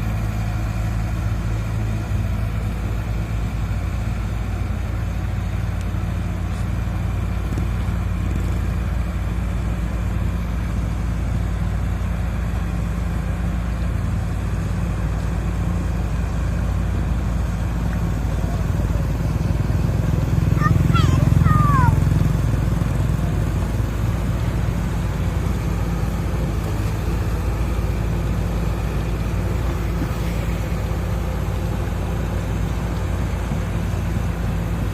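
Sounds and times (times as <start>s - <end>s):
excavator diesel engine running: 0.0s - 34.9s
excavator digging soil: 24.6s - 34.9s.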